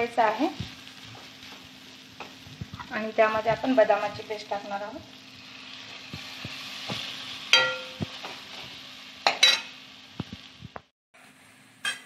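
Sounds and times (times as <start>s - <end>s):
beans and paste sizzling: 0.0s - 12.0s
spatula knocking on a pan: 6.1s - 8.4s.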